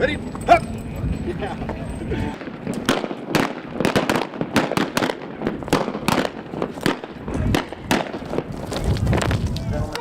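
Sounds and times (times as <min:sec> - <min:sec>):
sharp cracks: 0:02.5 - 0:09.6.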